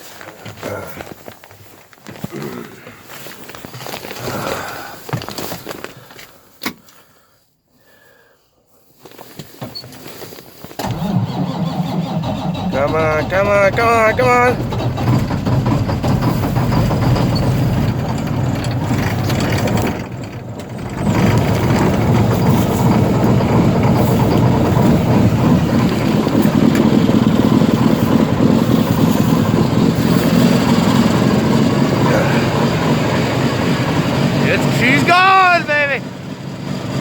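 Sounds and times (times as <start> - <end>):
diesel engine cranking and starting: 9.5 - 37.0.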